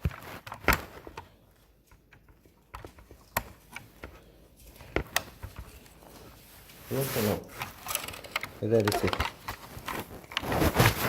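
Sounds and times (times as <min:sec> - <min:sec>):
toy car handling clicks and knocks: 0:01.9 - 0:04.2, 0:07.5 - 0:10.4.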